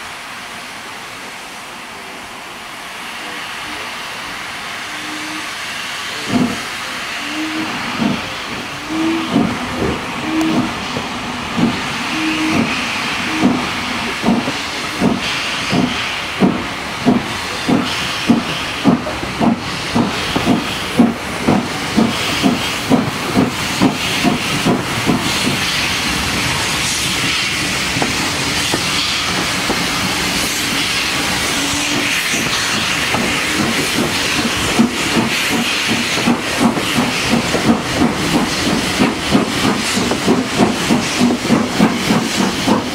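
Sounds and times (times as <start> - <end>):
steam hiss: 0.0 - 42.9
steam locomotive exhaust beats: 3.0 - 42.9.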